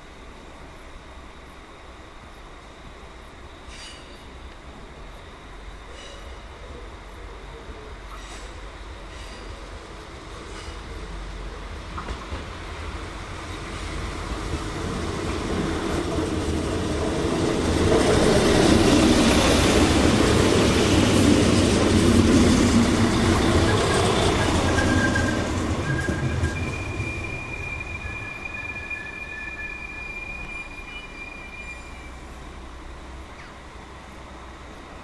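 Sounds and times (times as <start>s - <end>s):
train rumbling past: 0.0s - 35.0s
faint wheel squeal: 23.6s - 32.5s.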